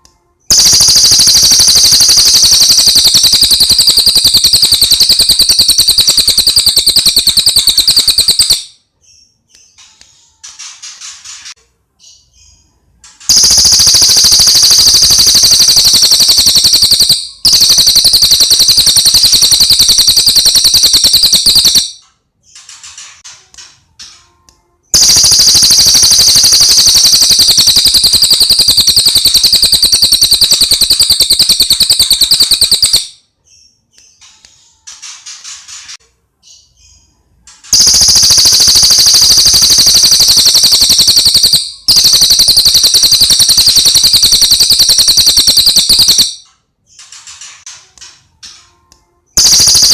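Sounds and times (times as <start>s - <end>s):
songbird fast rattling trill: 0.5s - 8.7s, 13.3s - 22.0s, 25.0s - 33.1s, 37.7s - 46.3s.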